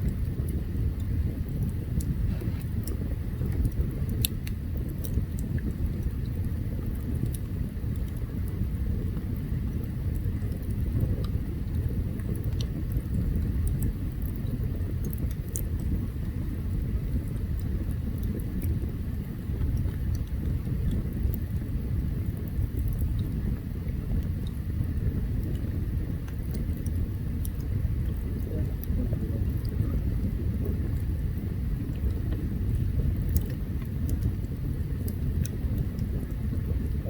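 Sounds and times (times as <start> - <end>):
campfire burning with crackles: 0.0 - 37.0.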